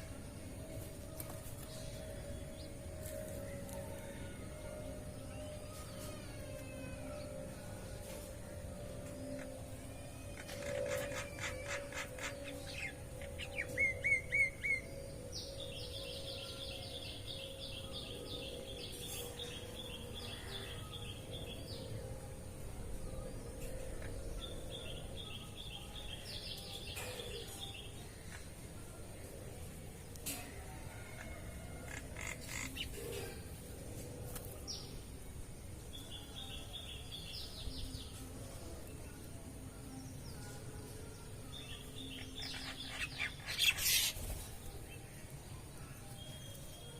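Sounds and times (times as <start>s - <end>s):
harsh bird calls: 10.2s - 14.8s.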